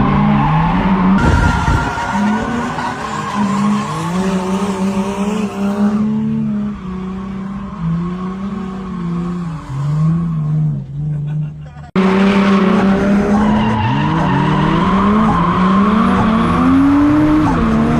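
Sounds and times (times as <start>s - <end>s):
car engine revving: 0.0s - 17.9s
tyres squealing: 0.4s - 5.7s.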